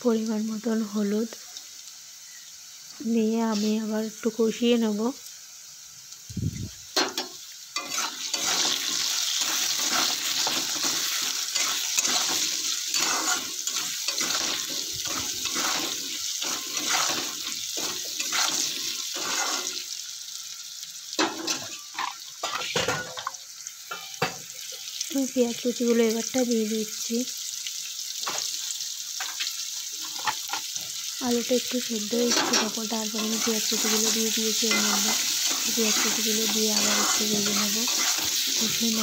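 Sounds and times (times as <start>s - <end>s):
potatoes sizzling in oil: 0.0s - 39.0s
spatula scraping pan: 7.0s - 19.8s, 32.3s - 39.0s.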